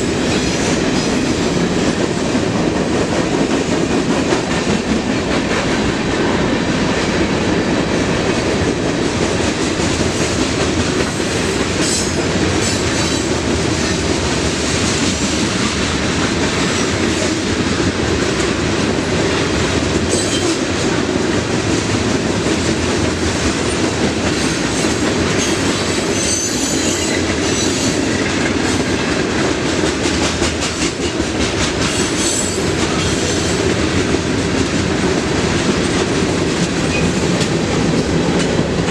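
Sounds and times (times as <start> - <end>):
train wheels clacking over rails: 0.0 - 38.9
train wheel squeals: 20.1 - 20.6, 24.8 - 28.1.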